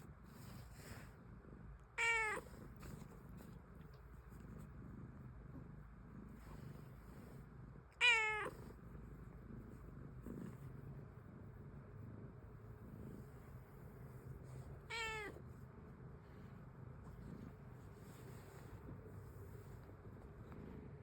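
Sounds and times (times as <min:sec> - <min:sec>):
cat meowing: 0:02.0 - 0:02.5, 0:08.0 - 0:08.6, 0:14.9 - 0:15.4.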